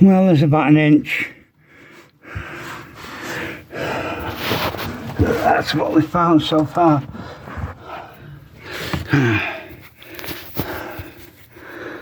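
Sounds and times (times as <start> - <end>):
person breathing out hard: 1.6 - 5.1, 7.1 - 12.0.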